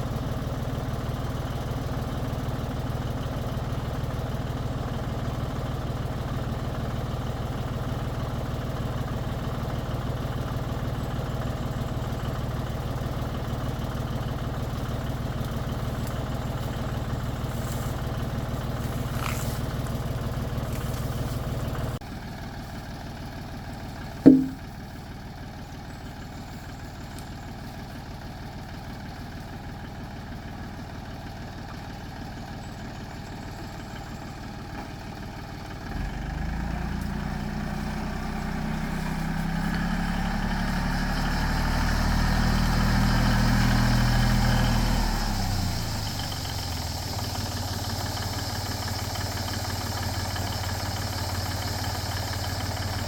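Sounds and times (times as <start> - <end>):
tractor engine idling and revving: 0.0 - 53.0
sharp knock: 24.3 - 24.6.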